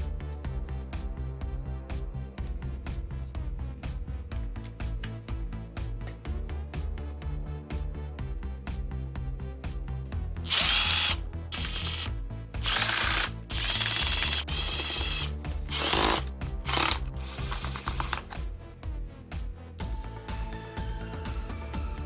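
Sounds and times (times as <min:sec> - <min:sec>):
background music: 0:00.0 - 0:22.0
cordless drill whirring: 0:10.5 - 0:18.4.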